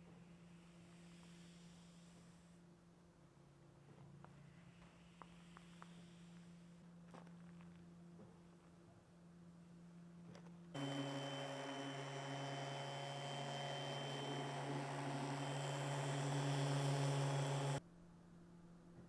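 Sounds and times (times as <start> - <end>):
electric motor humming: 10.8 - 17.8.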